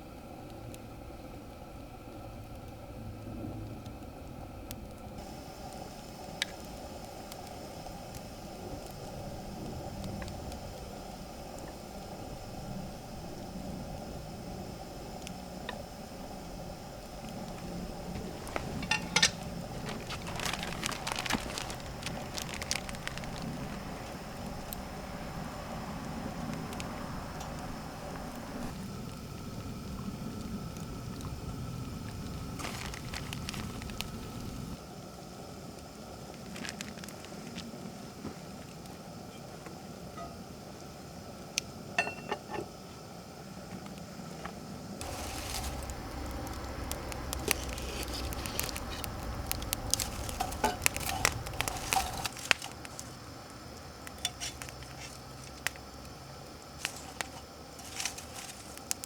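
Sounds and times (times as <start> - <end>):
wood fire crackling: 0.0 - 42.4, 43.8 - 59.0
food sizzling: 5.2 - 34.8, 45.0 - 56.0, 56.7 - 59.0
cookware clicking and clinking: 18.8 - 19.4, 42.0 - 42.7.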